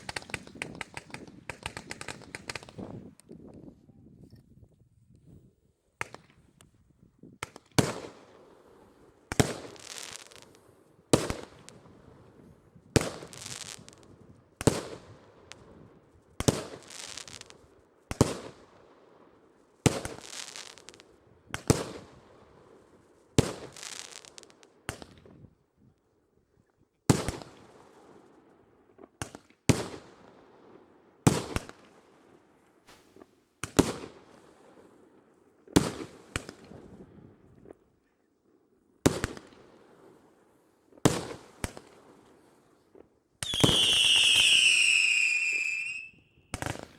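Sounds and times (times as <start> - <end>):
fireworks bangs: 0.0 - 2.9, 32.9 - 34.4, 43.4 - 46.9
fireworks crackle: 0.0 - 3.1, 32.9 - 34.5, 43.4 - 46.9.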